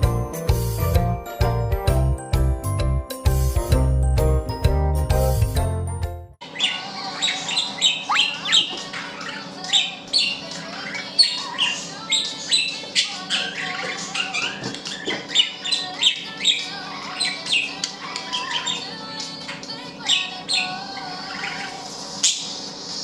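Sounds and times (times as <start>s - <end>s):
budgerigars chirping and squawking: 6.4s - 22.5s.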